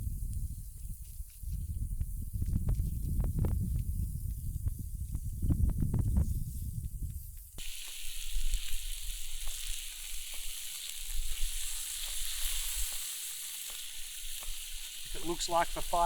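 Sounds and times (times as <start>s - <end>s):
wind rumble on microphone: 0.0s - 7.6s
food sizzling on hotplate: 7.6s - 16.0s.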